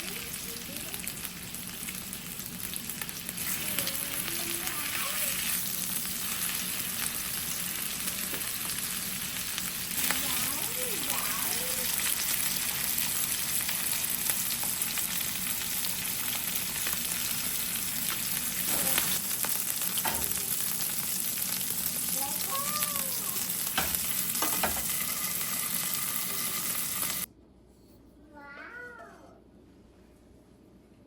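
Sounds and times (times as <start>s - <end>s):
steak sizzling in a frying pan: 0.0s - 27.3s
utensil knocking against pan: 23.8s - 24.9s.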